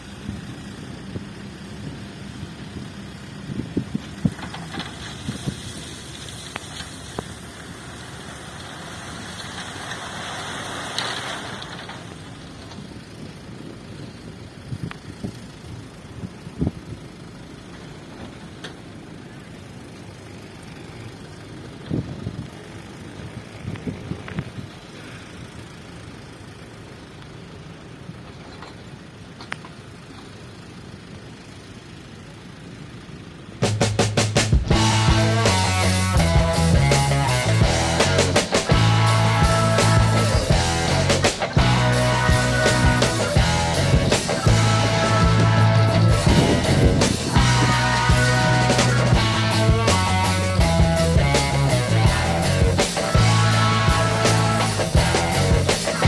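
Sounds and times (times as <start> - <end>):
dump truck running: 0.0 - 23.5, 32.4 - 56.0
diesel engine idling: 0.0 - 23.7, 29.9 - 56.0
rushing hiss: 4.7 - 12.5, 33.6 - 56.0.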